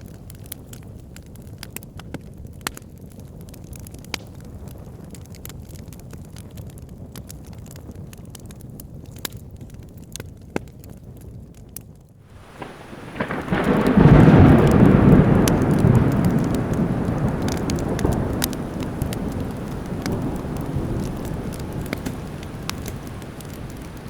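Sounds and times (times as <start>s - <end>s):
wood fire crackling and popping: 0.0s - 24.0s
rain hiss: 12.3s - 24.0s
thunder rumbling: 12.3s - 24.0s.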